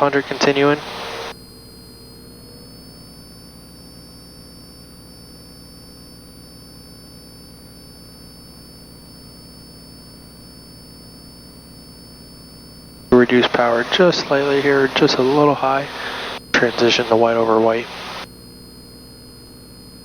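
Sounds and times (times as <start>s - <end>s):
airplane engine drone: 0.0s - 1.3s, 13.1s - 18.3s
high electrical whine: 0.0s - 1.8s, 12.8s - 18.3s.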